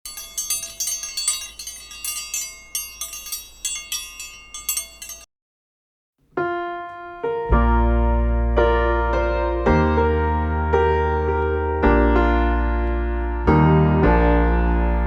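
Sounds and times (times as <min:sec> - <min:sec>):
high tinkling chimes: 0:00.0 - 0:05.3.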